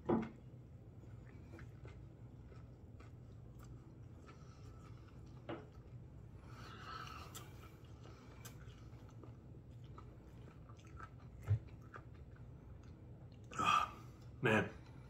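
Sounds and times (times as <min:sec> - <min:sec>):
man chewing food: 0:00.0 - 0:15.0.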